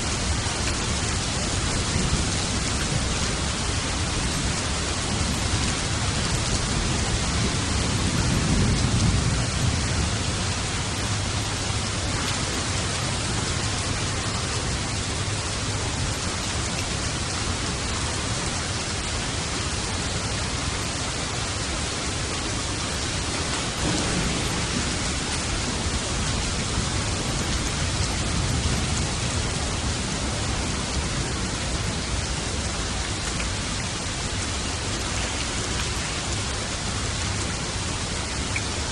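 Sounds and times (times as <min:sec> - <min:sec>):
heavy rain falling: 0:00.0 - 0:38.9
distant thunder rumble: 0:01.2 - 0:15.4, 0:23.4 - 0:32.4.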